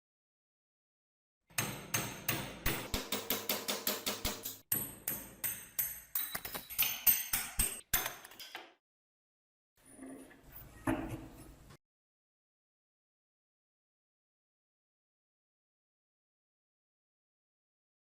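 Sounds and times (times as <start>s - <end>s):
hammer striking metal: 1.5s - 8.2s.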